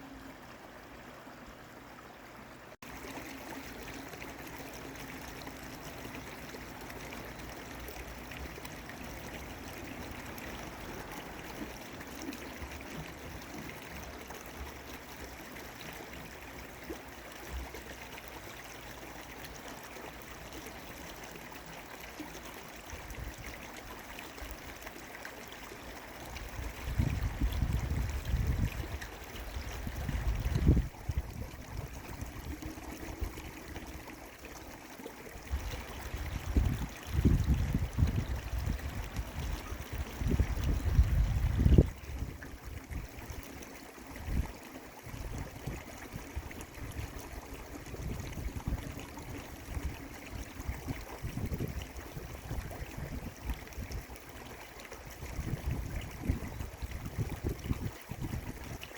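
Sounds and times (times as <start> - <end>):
stream flowing: 0.0 - 58.9.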